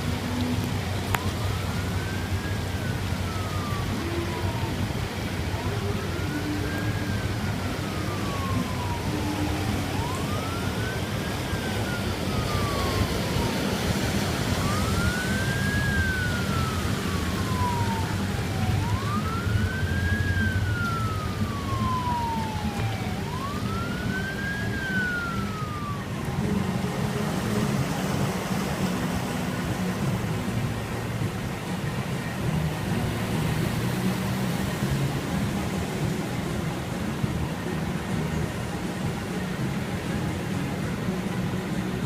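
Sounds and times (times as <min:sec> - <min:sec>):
steady low rumble: 0:00.0 - 0:33.8
emergency siren wailing: 0:00.0 - 0:42.0.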